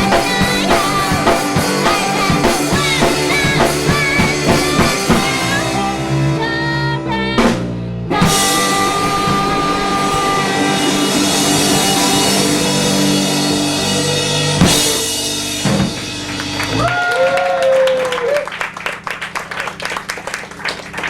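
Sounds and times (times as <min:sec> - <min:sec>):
person singing: 0:00.0 - 0:13.1
long held band chords: 0:00.0 - 0:16.9
drum kit: 0:00.0 - 0:17.8
guitar: 0:00.0 - 0:21.0.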